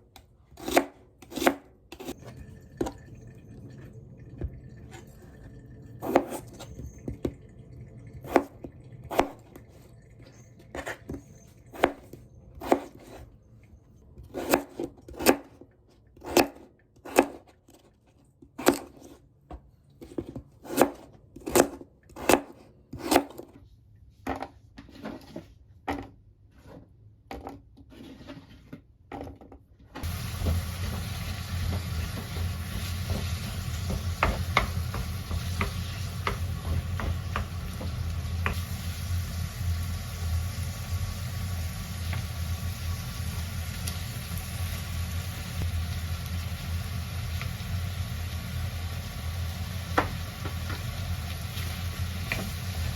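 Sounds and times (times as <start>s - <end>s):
knife chopping on cutting board: 0.6s - 2.1s, 31.7s - 38.6s
food sizzling in a pan: 30.0s - 52.9s.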